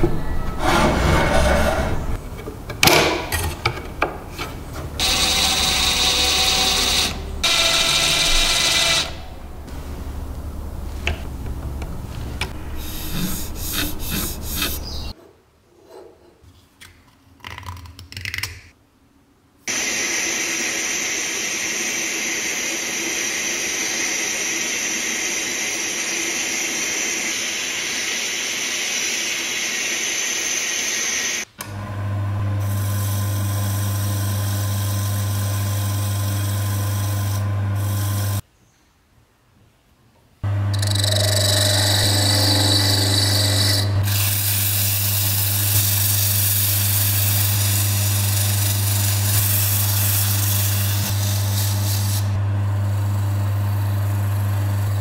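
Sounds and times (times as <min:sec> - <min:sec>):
scraping or sanding noise: 0:00.5 - 0:02.2, 0:12.0 - 0:15.2
electric motor running: 0:05.0 - 0:09.7, 0:40.4 - 0:55.0
tool motor humming: 0:05.0 - 0:09.7, 0:40.4 - 0:55.0.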